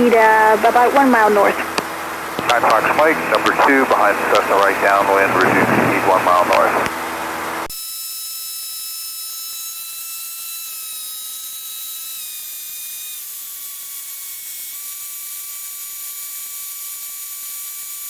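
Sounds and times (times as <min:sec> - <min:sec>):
radio hiss with high whine: 0:00.0 - 0:07.7.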